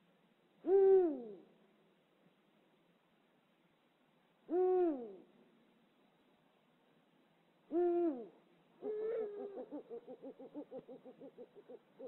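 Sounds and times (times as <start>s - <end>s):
owl hooting: 0.6s - 1.5s, 4.5s - 5.2s, 7.7s - 12.0s.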